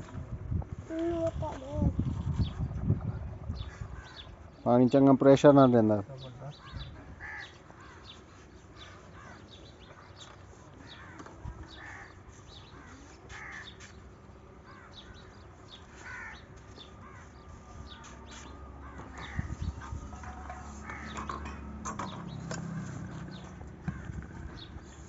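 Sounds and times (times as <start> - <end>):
harsh crow-like bird call: 6.6 - 8.2, 10.8 - 12.2, 12.8 - 13.9, 15.9 - 17.4, 18.8 - 20.0, 20.6 - 21.4.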